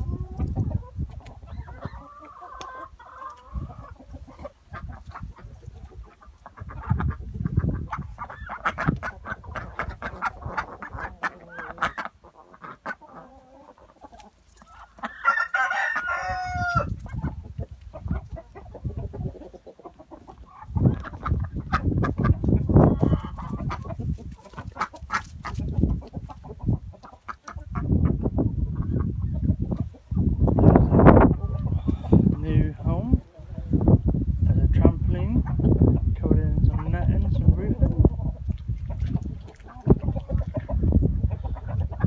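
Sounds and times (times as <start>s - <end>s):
chickens clucking: 0.0s - 42.0s
rooster crowing: 15.1s - 17.0s.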